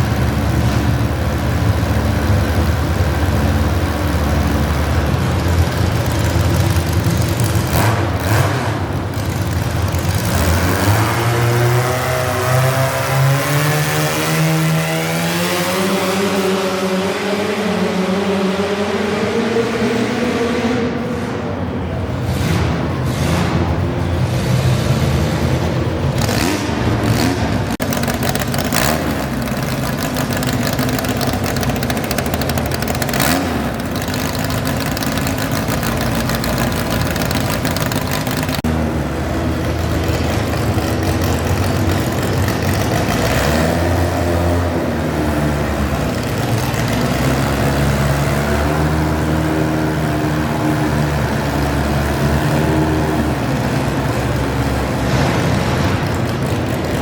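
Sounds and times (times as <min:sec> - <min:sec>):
garden tractor engine revving: 0:26.2 - 0:56.0.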